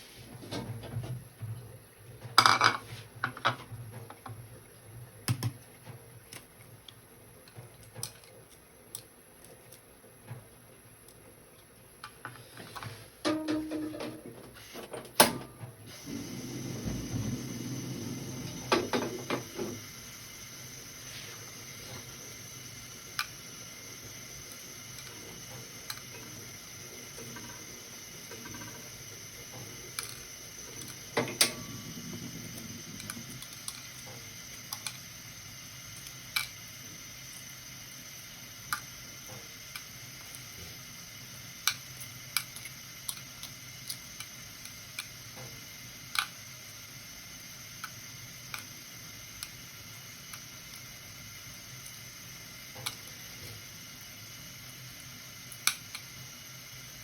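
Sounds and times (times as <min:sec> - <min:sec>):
steady hiss: 0:15.8 - 0:57.0.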